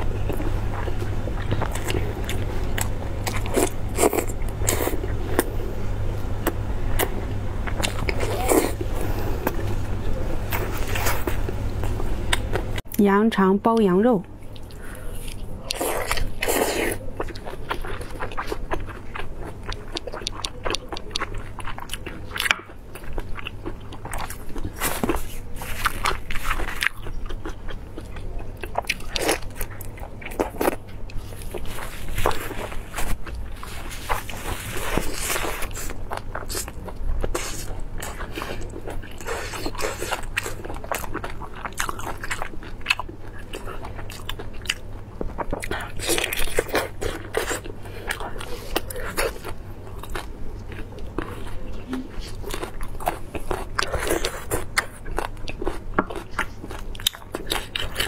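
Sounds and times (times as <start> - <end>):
steady low hum: 0.0 - 58.0
wet crackling chewing and biting: 14.4 - 58.0.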